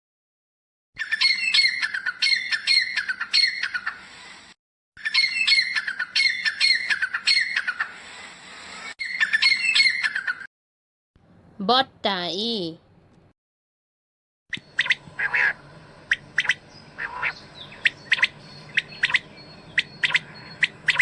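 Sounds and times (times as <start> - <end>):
francolin calling harsh grating notes: 14.7 - 21.0.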